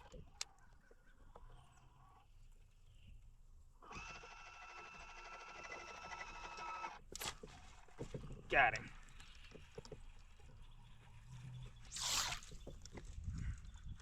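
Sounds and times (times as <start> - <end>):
fishing reel whirring: 3.8 - 7.0, 11.9 - 12.7.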